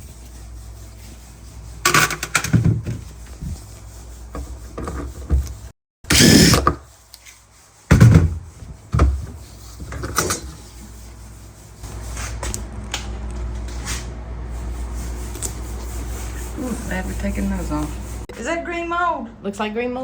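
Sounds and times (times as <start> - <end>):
refrigerator parts knocking: 2.1 - 3.0, 7.9 - 10.4.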